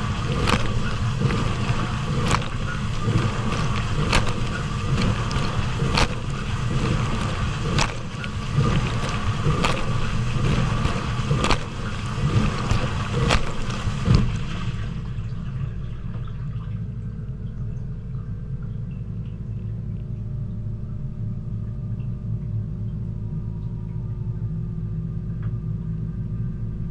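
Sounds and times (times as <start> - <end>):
spray arm knocking: 0.0 - 14.4
water spraying: 0.0 - 15.1
dishwasher pump hum: 0.0 - 26.9.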